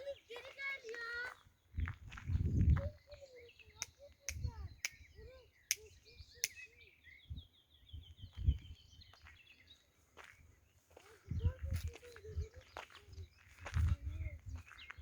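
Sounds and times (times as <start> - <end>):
birds singing and calling: 0.0 - 15.0
sharp clicks: 5.7 - 6.7.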